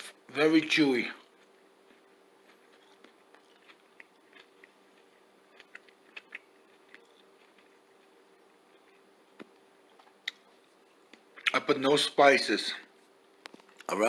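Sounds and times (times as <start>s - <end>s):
faint steady hum: 0.0s - 14.0s
chewing mouth clicks: 1.4s - 7.8s.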